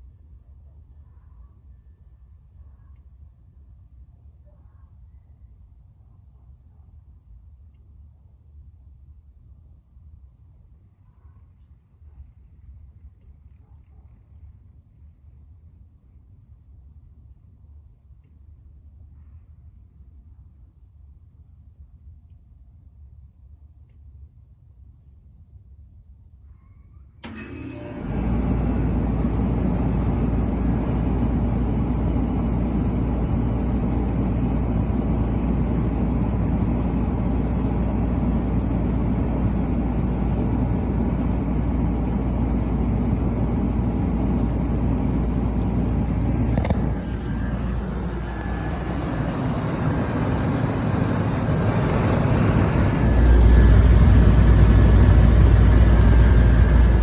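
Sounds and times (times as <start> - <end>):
air conditioner unit humming: 27.2 - 57.0.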